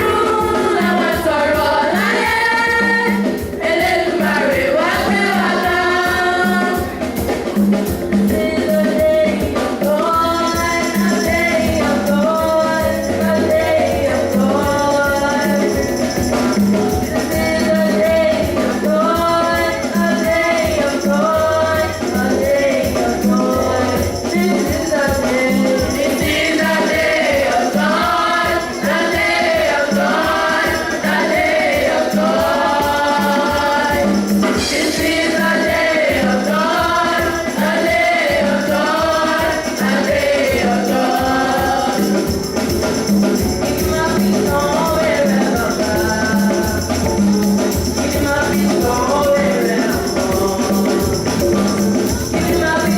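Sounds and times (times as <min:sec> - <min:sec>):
choir singing gospel: 0:00.0 - 0:52.9
shakers: 0:00.0 - 0:52.9
steady drum beat: 0:00.0 - 0:52.9
tambourine: 0:00.0 - 0:52.9.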